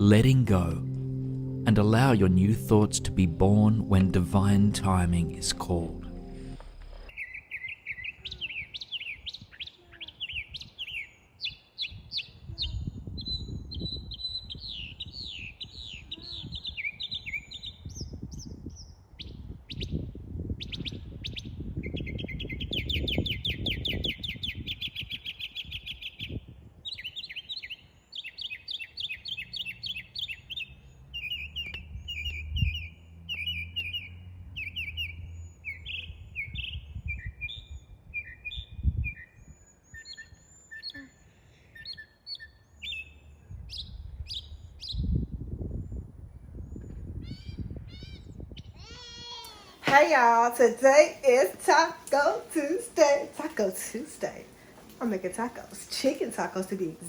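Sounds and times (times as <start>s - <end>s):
low rumble: 0.0s - 7.1s
songbirds chirping: 0.0s - 45.1s, 49.8s - 57.0s.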